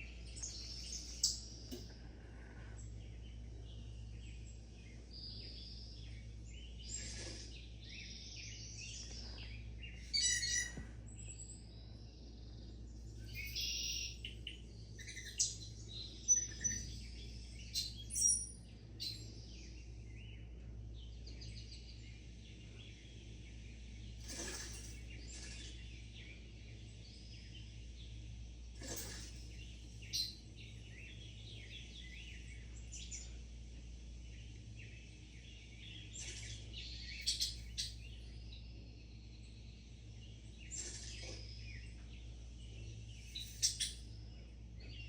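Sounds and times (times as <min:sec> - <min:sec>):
faint low hum: 0:00.0 - 0:45.0
small birds chirping: 0:00.0 - 0:45.0.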